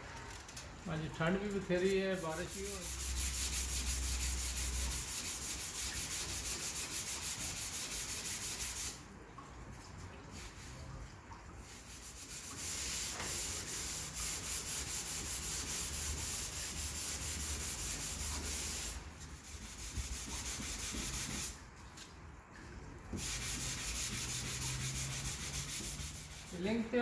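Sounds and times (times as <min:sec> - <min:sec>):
sandpaper sanding filler: 0:01.8 - 0:09.0, 0:11.8 - 0:21.6, 0:23.2 - 0:27.0.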